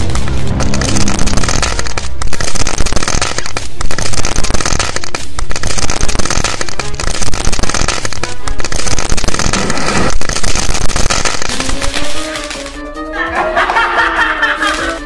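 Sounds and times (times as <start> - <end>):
firework fountain hissing and crackling: 0.8 - 12.6.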